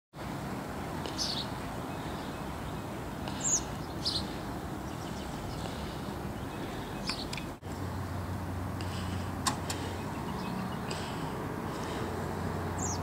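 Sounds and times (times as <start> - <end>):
high bird chirps: 1.1 - 7.6, 12.8 - 13.0.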